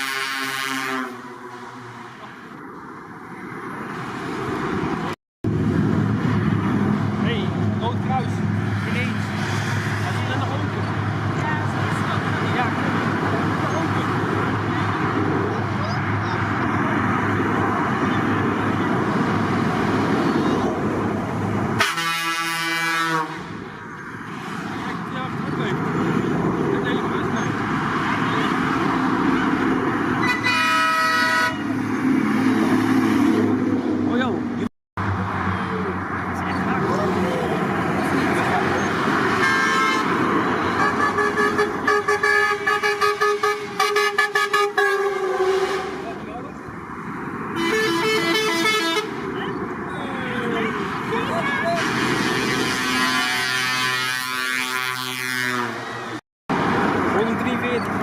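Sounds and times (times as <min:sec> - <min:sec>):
truck air horn blast: 0:00.0 - 0:02.0, 0:21.8 - 0:23.6, 0:30.2 - 0:31.7, 0:39.3 - 0:46.2, 0:47.6 - 0:49.2, 0:51.4 - 0:56.2
heavy trucks passing: 0:00.0 - 0:58.0.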